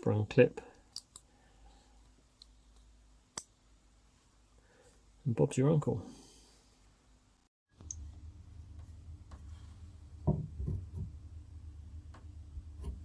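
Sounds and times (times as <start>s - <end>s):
steady low hum: 7.8s - 13.0s.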